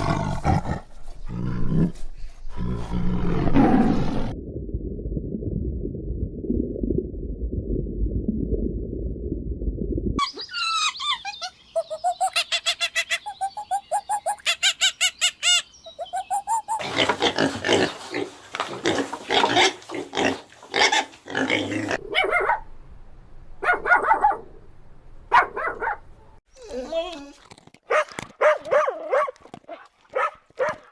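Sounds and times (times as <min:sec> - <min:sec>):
animal squeaks: 0:10.2 - 0:16.9.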